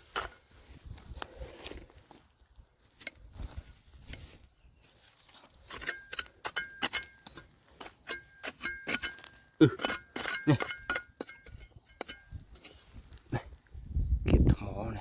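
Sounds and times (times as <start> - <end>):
metal digging tool striking rock: 5.6 - 12.9.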